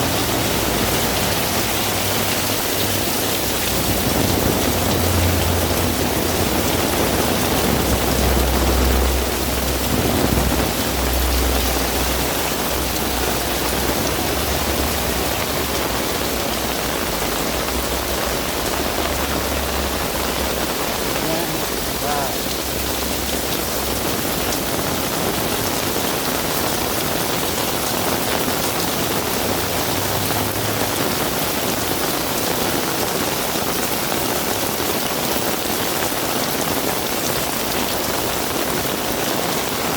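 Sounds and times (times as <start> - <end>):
heavy rain falling: 0.0 - 39.9
low rumble: 3.3 - 22.0.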